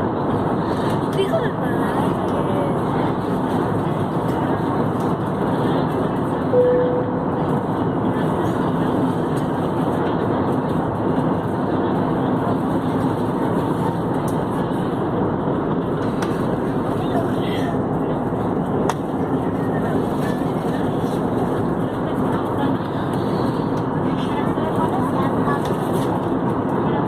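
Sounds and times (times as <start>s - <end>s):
airliner cabin roar: 0.0s - 27.0s
short tone: 6.5s - 7.4s.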